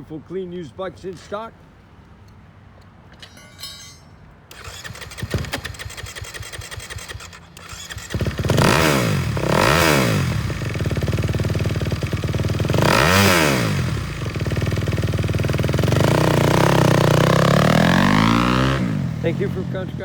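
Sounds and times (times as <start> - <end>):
motorcycle electric starter cranking: 3.2 - 13.3
motorcycle engine revving: 4.5 - 20.0.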